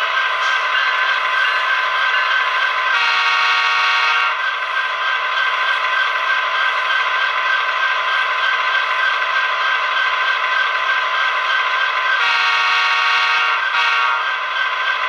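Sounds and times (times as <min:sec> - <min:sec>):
model locomotive diesel engine: 0:00.0 - 0:15.0
air horn: 0:02.9 - 0:04.4, 0:12.2 - 0:14.3.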